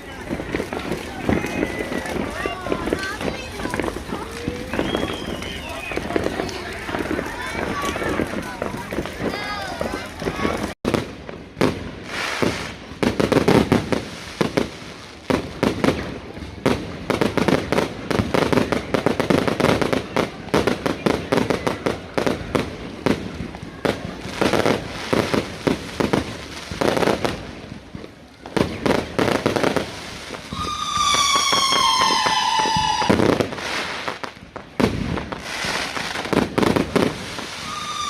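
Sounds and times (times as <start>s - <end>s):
firework whistle: 0.0s - 10.7s, 29.5s - 34.3s, 35.4s - 38.0s
fireworks bangs and crackles: 0.0s - 38.0s.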